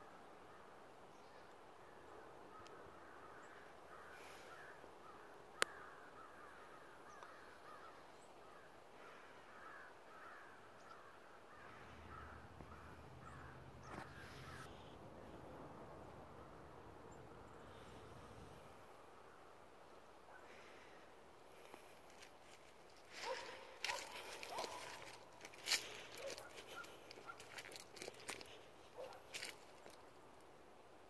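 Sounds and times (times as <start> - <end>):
faint bird calls: 0.5 - 15.4, 16.3 - 30.2
low hum: 11.6 - 19.5.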